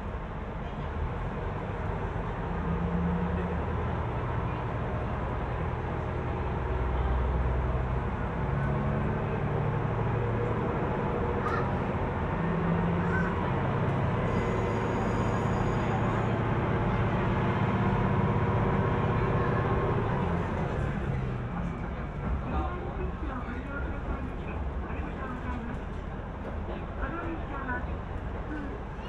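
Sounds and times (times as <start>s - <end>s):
train drive hum: 0.0s - 29.0s
train running rumble: 0.0s - 29.0s.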